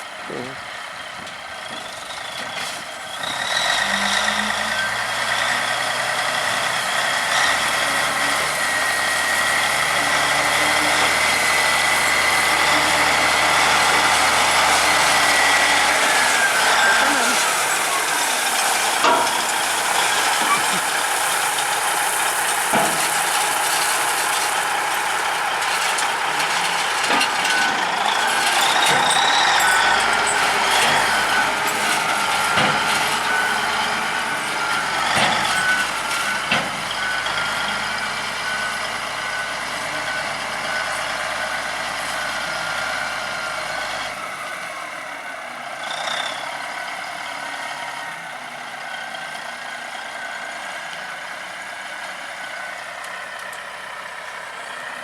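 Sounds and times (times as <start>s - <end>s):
dump truck running: 0.0s - 55.0s
knocks and clanks: 18.8s - 21.0s, 22.7s - 24.4s, 25.7s - 33.4s
reverse alarm beeping: 27.4s - 43.2s.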